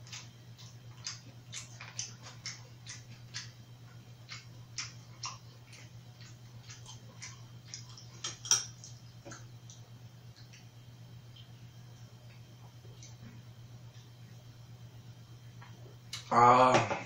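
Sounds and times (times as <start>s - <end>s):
chewing and lip smacking: 0.0s - 11.6s
steady low hum: 0.0s - 17.0s.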